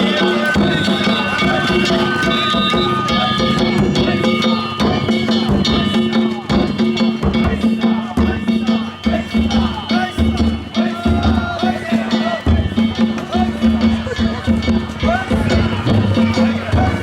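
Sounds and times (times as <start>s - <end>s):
crowd voices: 0.0s - 17.0s
hand gongs beaten: 0.0s - 17.0s
taiko drums: 0.0s - 17.0s.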